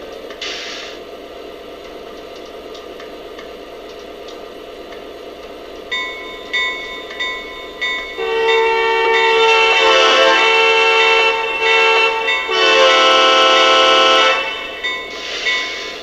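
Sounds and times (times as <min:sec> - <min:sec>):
diesel engine drone: 0:00.0 - 0:16.0
locomotive bell ringing: 0:05.9 - 0:16.0.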